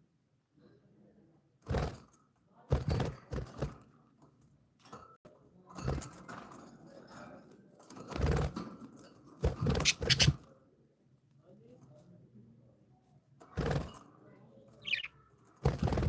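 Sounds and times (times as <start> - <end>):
budgies rustling and knocking in cage: 1.6 - 10.6, 13.4 - 16.0.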